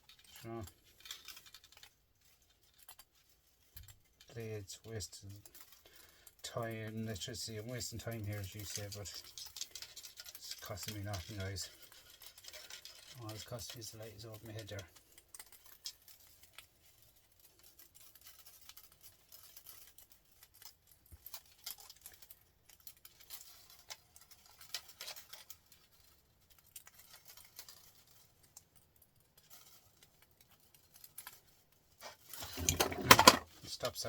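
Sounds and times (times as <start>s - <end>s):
light clicks and rattles: 0.0s - 34.0s
loud clatter: 32.3s - 33.5s.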